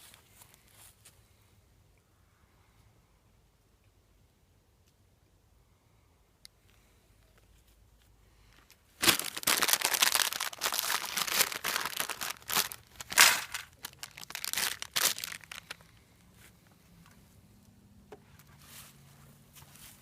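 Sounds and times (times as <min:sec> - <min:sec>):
packaging crumpled and rustled: 0:09.0 - 0:16.0.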